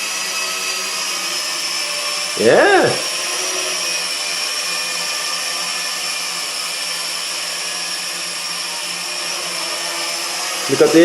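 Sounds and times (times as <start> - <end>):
toy drone propellers whirring: 0.0 - 11.0.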